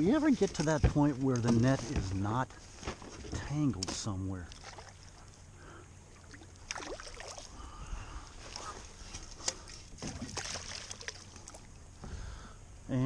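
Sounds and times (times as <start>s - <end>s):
small water splashes: 4.4s - 5.4s, 6.1s - 7.7s, 9.4s - 11.8s.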